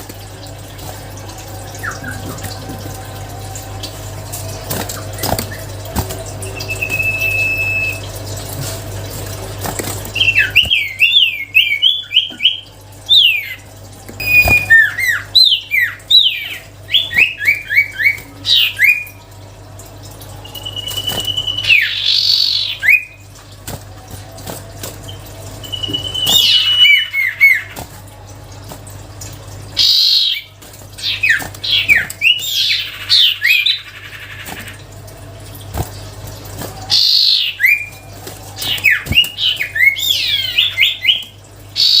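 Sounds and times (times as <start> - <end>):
low steady hum: 0.0 - 42.0
bird singing whistles: 6.6 - 8.0, 14.2 - 16.4, 20.4 - 23.2, 25.6 - 27.6.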